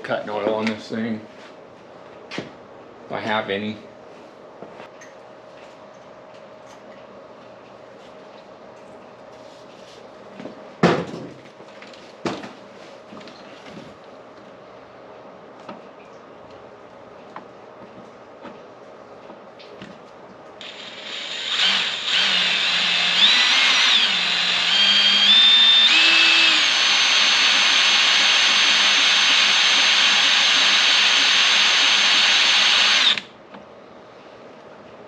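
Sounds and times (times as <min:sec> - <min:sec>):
power drill whining: 0:20.6 - 0:33.3.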